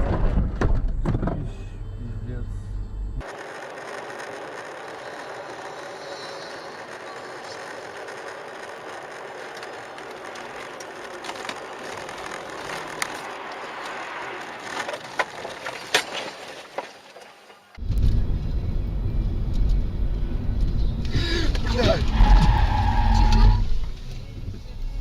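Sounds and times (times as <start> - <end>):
road and vehicle noise: 0.0 - 25.0.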